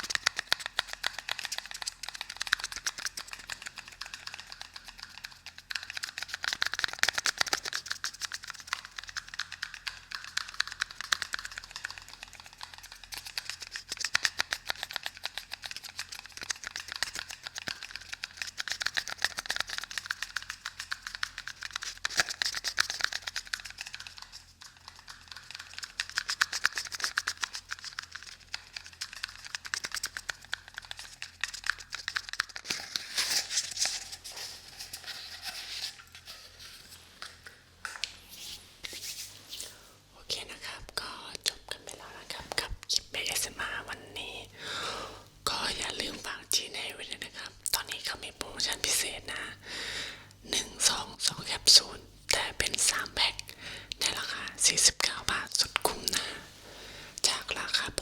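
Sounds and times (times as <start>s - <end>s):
rapid tapping and scratching clicks: 0.0s - 34.1s.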